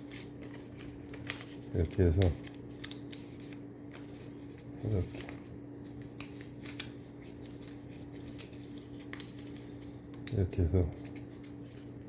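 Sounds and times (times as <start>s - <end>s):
paper banknotes crackling: 0.0s - 12.0s
steady low hum: 0.0s - 12.0s.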